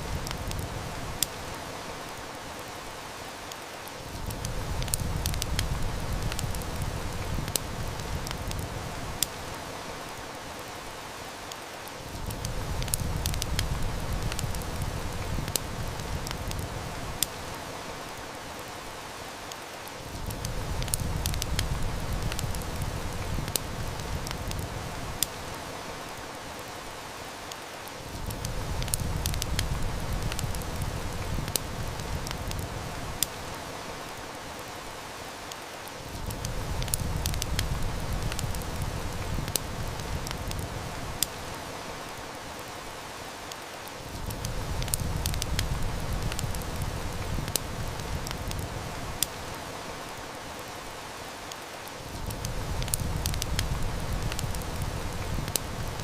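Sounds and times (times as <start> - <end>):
rain-like hiss: 0.0 - 56.0
wood fire crackling: 0.0 - 56.0.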